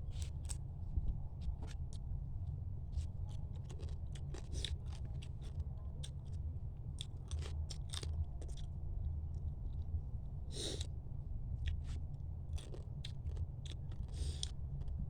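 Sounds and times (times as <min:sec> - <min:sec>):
steady low hum: 0:00.0 - 0:15.0
crunching and chewing crab: 0:02.9 - 0:10.9, 0:11.5 - 0:15.0.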